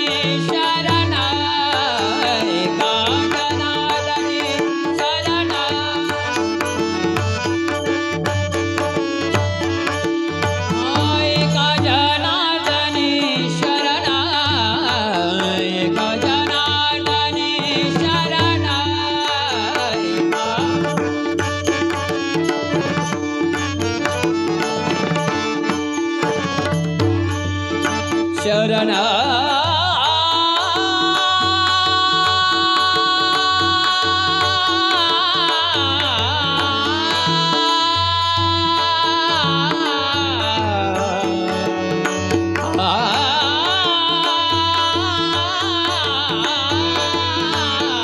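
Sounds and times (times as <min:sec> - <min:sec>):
tabla drum strokes: 0:00.1 - 0:29.0.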